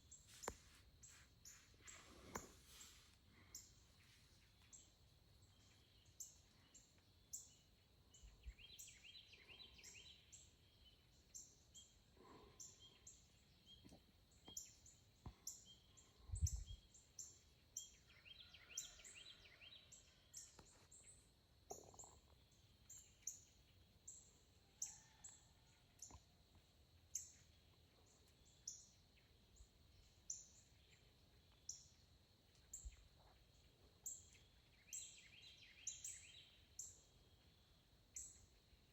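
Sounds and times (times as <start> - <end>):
small birds chirping: 0.0 - 19.0, 27.0 - 38.9.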